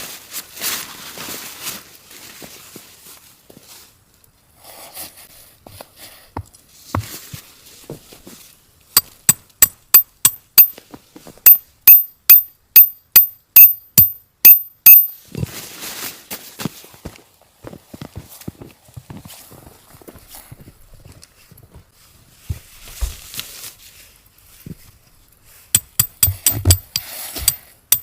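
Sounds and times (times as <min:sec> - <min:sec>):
hammer striking metal with ring: 0:11.5 - 0:15.2, 0:25.8 - 0:28.0.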